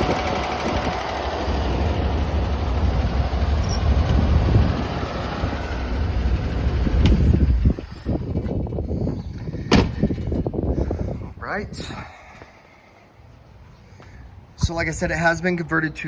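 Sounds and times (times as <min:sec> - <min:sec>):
car engine idling: 0:00.0 - 0:11.2
air conditioning running: 0:00.0 - 0:15.6.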